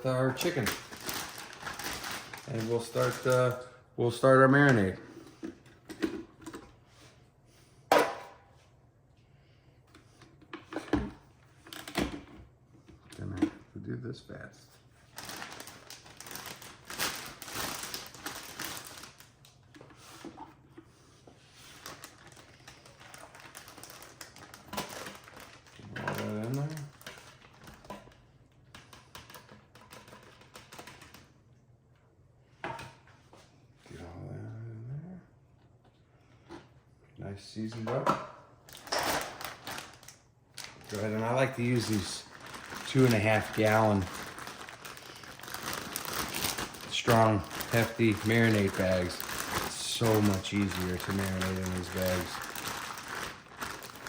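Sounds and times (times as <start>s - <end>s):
plastic bag crackling: 0.0s - 3.6s, 15.1s - 19.5s, 21.7s - 27.8s, 38.7s - 54.0s.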